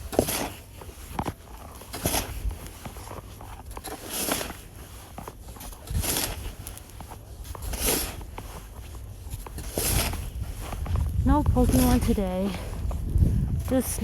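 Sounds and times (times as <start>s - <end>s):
snow shovel scraping snow: 0.0s - 14.0s
low rumble: 10.8s - 14.0s.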